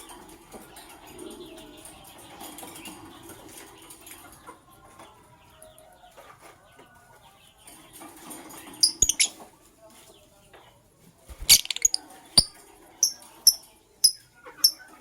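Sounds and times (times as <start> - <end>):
birds chirping faintly: 8.6 - 9.5, 11.3 - 15.0
rustling and wing flutters: 11.3 - 12.5.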